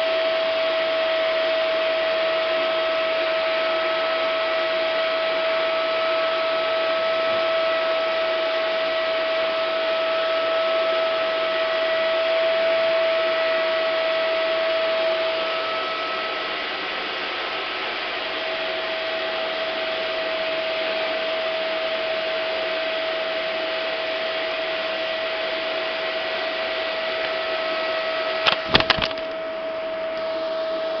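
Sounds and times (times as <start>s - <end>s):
vacuum cleaner running: 0.0s - 31.0s
quick sharp clicks: 28.4s - 29.4s.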